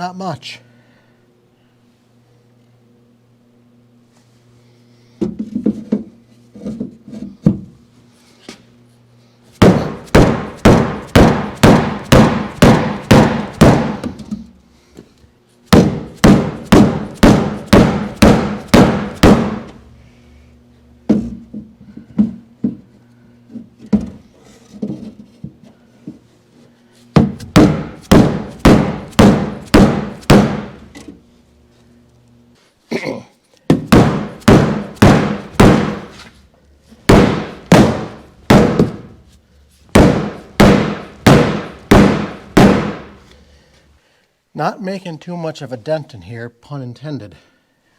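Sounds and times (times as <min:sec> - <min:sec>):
hammer striking steel door panel: 0:09.6 - 0:14.2, 0:15.8 - 0:19.7, 0:27.2 - 0:30.8, 0:33.8 - 0:36.1, 0:37.1 - 0:39.1, 0:40.0 - 0:43.1.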